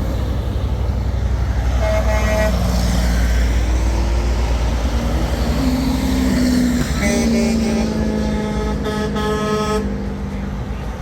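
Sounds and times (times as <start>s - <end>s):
heavy trucks rumbling past: 0.0s - 11.0s
truck horn: 1.6s - 2.9s, 6.8s - 10.1s.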